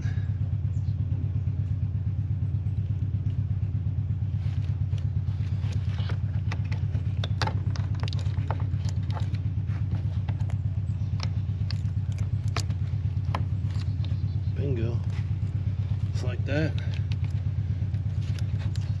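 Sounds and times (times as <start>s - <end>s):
pulsing machine drone: 0.0s - 19.0s
connectors clicking and clattering: 4.6s - 14.4s, 15.0s - 19.0s.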